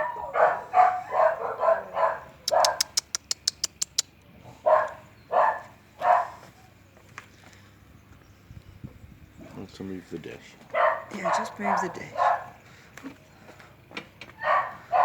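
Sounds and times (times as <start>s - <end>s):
dog barking: 0.0s - 3.0s, 4.5s - 6.5s, 10.7s - 12.6s, 14.4s - 15.0s
sharp clicks: 2.5s - 4.1s.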